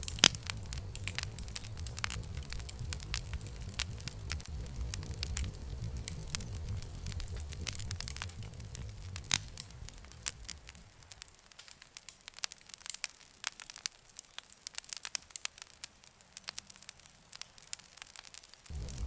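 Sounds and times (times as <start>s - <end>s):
low rumble: 0.0s - 10.8s, 18.7s - 19.0s
campfire wood crackling and popping: 0.0s - 19.0s.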